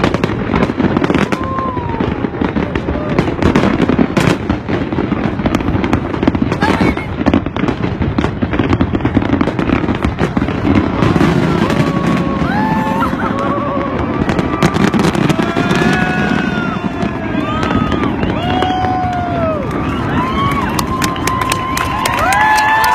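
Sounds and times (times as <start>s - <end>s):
fireworks bursting and crackling: 0.0s - 22.9s
crowd shouting and whooping: 1.0s - 4.0s, 10.5s - 22.9s.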